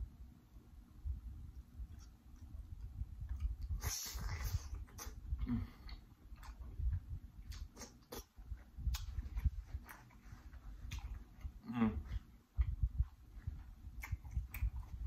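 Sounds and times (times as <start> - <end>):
wet chewing mouth noises: 1.9 - 15.0
person humming: 11.6 - 12.2.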